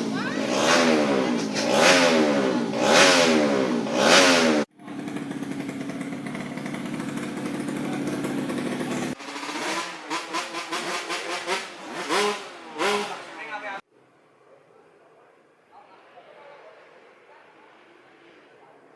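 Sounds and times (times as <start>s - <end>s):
motorbike engine revving and idling: 0.0s - 13.9s.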